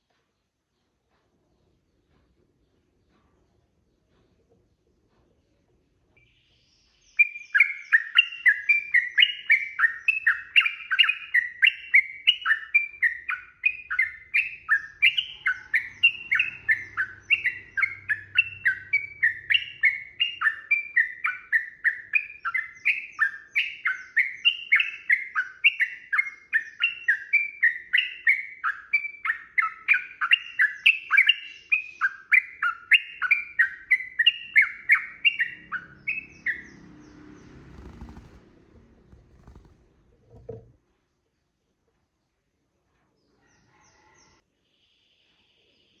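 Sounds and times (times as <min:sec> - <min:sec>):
bird warbling song: 0:05.4 - 0:40.7.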